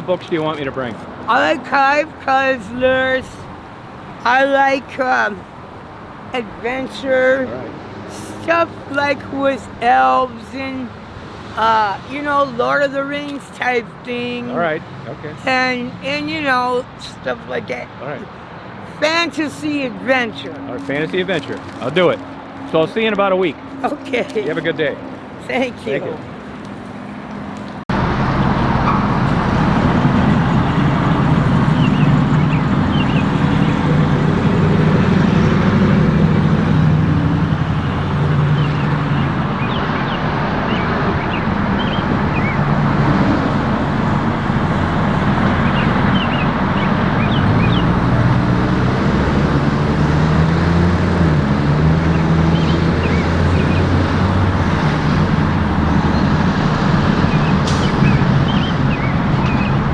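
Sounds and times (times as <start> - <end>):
road noise: 0.0 - 59.9
vehicle engine running: 26.4 - 59.9.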